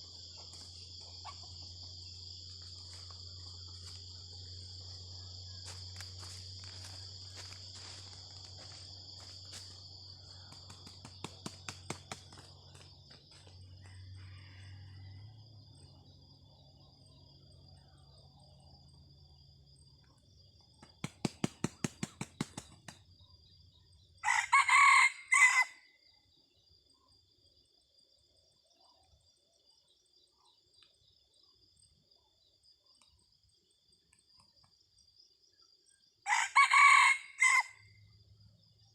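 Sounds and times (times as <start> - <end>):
insects droning: 0.0 - 38.9
rooster crowing: 13.8 - 15.4, 24.2 - 26.0, 36.2 - 38.0
sharp claps: 20.8 - 23.0.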